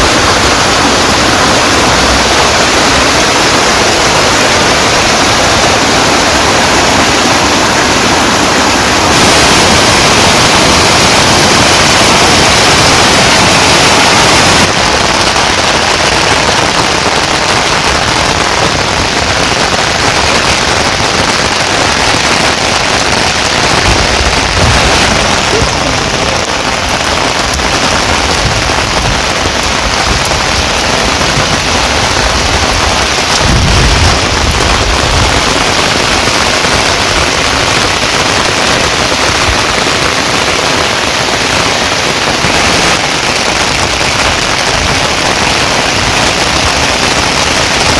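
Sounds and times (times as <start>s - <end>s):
heavy rain pouring: 0.0s - 47.9s
low rumbling: 22.8s - 36.4s.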